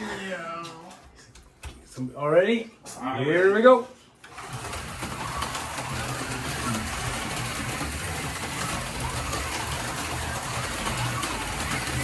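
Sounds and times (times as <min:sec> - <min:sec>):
slot car motors whirring: 0:04.2 - 0:12.0
slot cars clicking on rails: 0:04.3 - 0:12.0.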